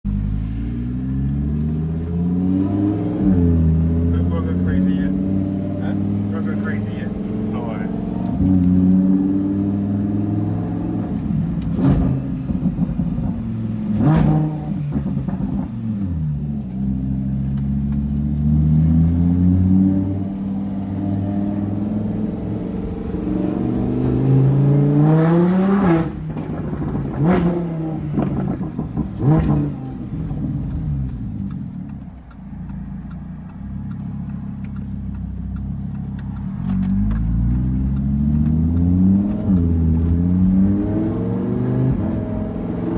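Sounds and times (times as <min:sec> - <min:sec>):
sports car accelerating: 0:00.1 - 0:42.9
exhaust cracks: 0:00.5 - 0:09.0, 0:17.4 - 0:42.9.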